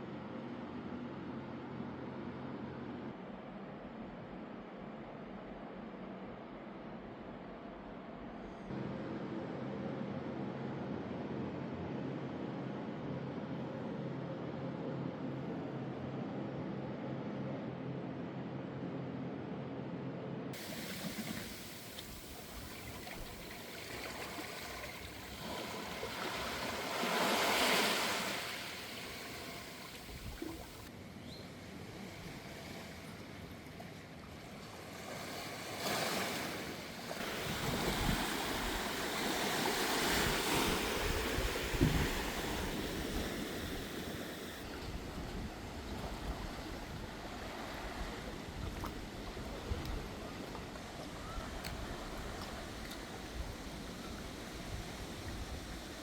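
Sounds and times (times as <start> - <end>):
sea waves washing on shore: 20.6 - 30.9, 34.6 - 56.0.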